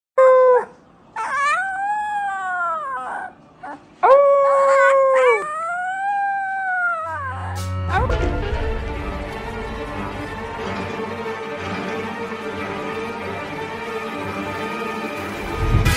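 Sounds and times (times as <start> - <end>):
puppy howling: 0.2 - 7.7
music: 7.1 - 15.9.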